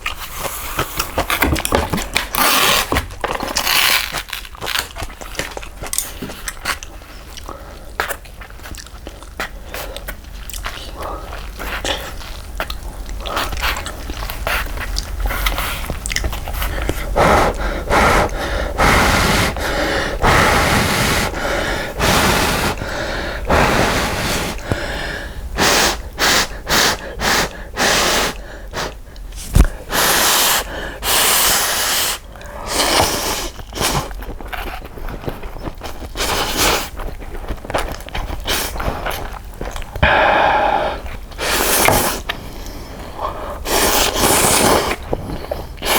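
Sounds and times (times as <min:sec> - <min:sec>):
soft chewing clicks: 0:04.5 - 0:17.6
loud slurps of noodles: 0:17.3 - 0:24.6, 0:29.5 - 0:34.1, 0:43.6 - 0:45.1.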